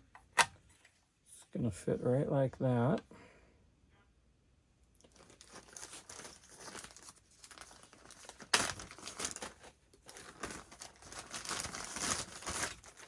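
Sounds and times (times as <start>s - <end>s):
plastic packaging crinkling: 5.0s - 13.0s.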